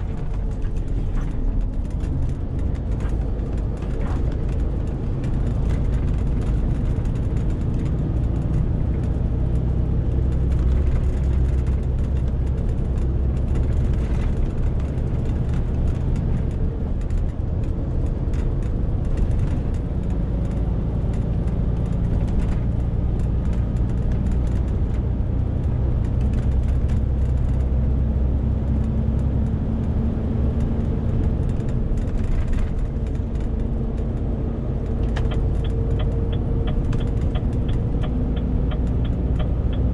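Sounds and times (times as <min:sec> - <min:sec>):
road noise: 0:00.0 - 0:39.9
truck engine droning under load: 0:27.6 - 0:39.9.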